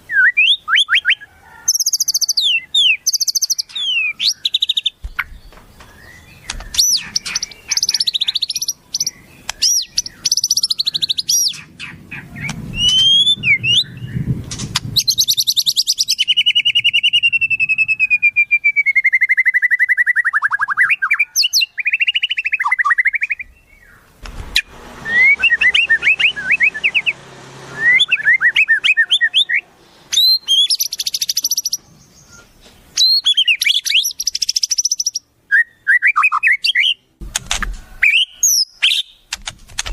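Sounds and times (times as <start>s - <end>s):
songbirds chirping and trilling: 0.0s - 39.9s
buzzy descending bird trill: 20.5s - 31.8s.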